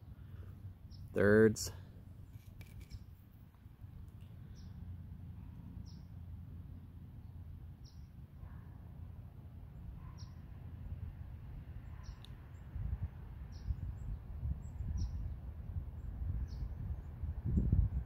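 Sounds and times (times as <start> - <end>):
small bird chirping: 4.4 - 4.8, 5.8 - 6.1, 7.2 - 8.1, 10.0 - 10.4, 11.8 - 12.7, 13.5 - 15.4
wind rumble on microphone: 11.0 - 18.0.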